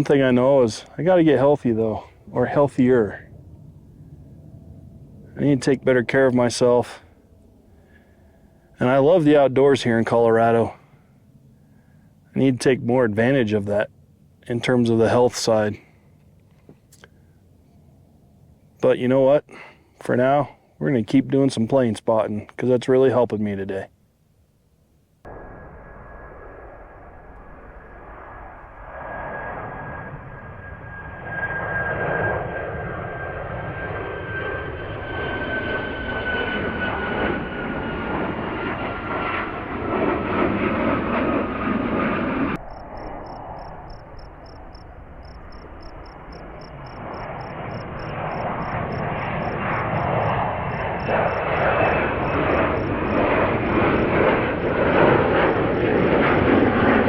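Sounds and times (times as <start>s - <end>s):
jet taking off: 0.0s - 16.1s, 25.3s - 57.0s
jet engine whistling whine: 0.0s - 21.0s, 25.3s - 57.0s.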